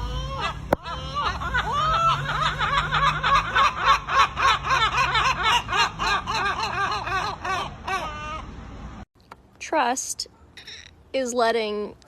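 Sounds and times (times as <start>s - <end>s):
parrot mimicking laughter: 0.0s - 8.6s.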